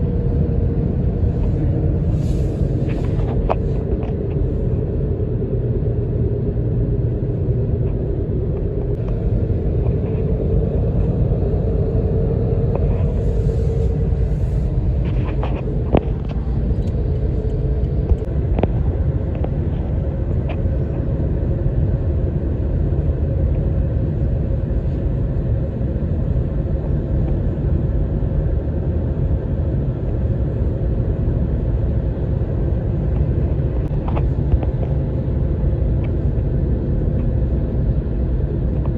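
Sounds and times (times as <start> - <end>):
wavering hum: 0.0 - 27.9
highway traffic rumble: 0.0 - 38.9.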